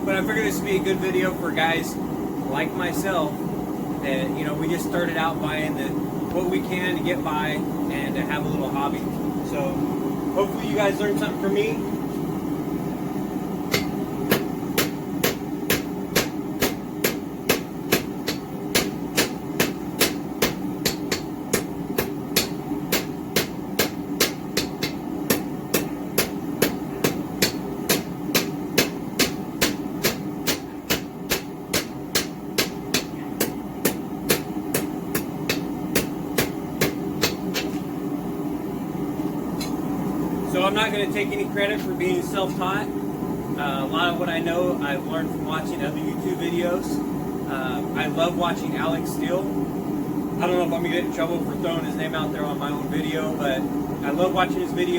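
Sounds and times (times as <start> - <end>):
hammer striking hot steel: 13.6 - 37.8.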